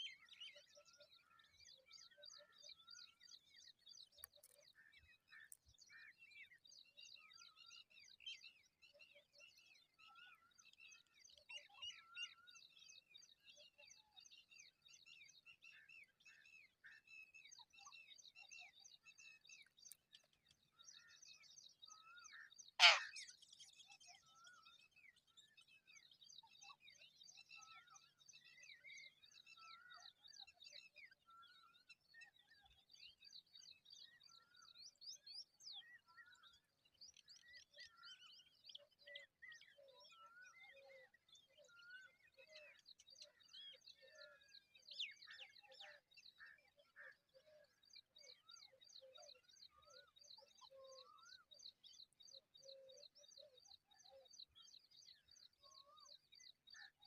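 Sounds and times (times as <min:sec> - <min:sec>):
high bird trill: 0:22.8 - 0:23.1.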